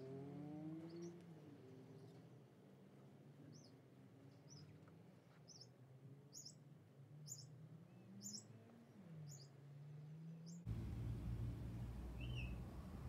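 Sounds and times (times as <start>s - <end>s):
bird chirping: 6.3s - 6.6s, 7.2s - 8.6s, 9.2s - 9.5s, 10.3s - 11.3s, 11.9s - 13.0s
faint low hum: 10.7s - 13.0s
low rumble: 10.7s - 13.0s.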